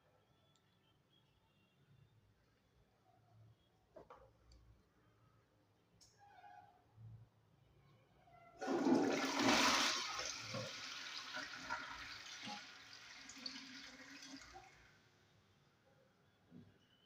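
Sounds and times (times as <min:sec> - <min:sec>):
toilet flushing: 0:08.6 - 0:15.0.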